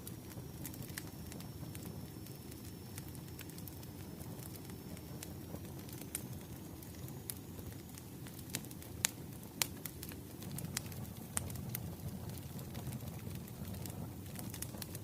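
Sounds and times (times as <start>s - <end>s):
low rumble of burning: 0.0s - 15.0s
wood fire crackling: 0.0s - 15.0s.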